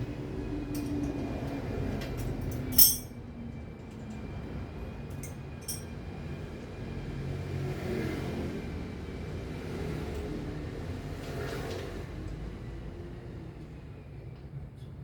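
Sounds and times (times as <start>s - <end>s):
low rumble of traffic: 0.0s - 15.0s
sharp metallic clink: 2.7s - 3.1s, 5.6s - 5.9s.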